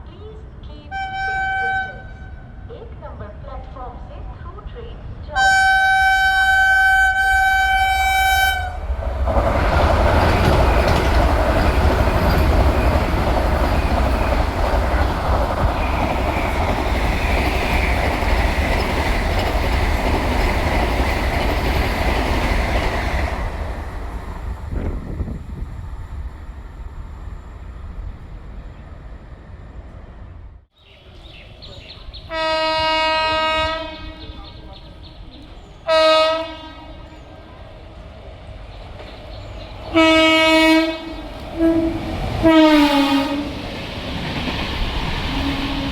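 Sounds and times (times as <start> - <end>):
train rushing rumble: 0.1 - 45.9
train horn blasts: 0.9 - 2.6, 5.4 - 8.9, 32.3 - 34.6, 35.9 - 37.1, 39.9 - 43.6.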